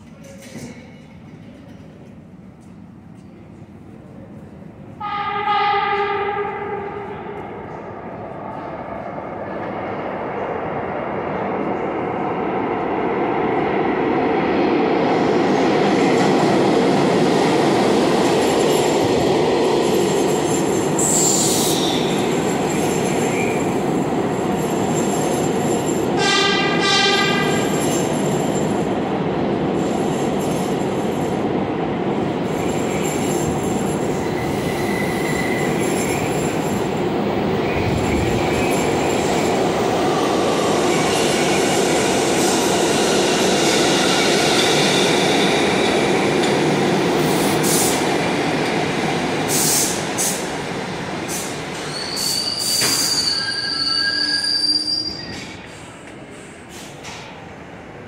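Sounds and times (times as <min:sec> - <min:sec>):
train rumbling past: 0:00.0 - 0:58.0
train horn blast: 0:05.0 - 0:07.4, 0:26.2 - 0:27.6
high squeal falling in pitch: 0:51.9 - 0:55.5.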